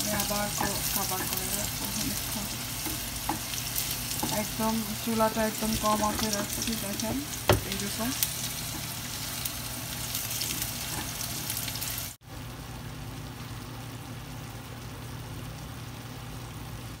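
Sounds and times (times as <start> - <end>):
chicken sizzling in a pan: 0.0 - 12.2.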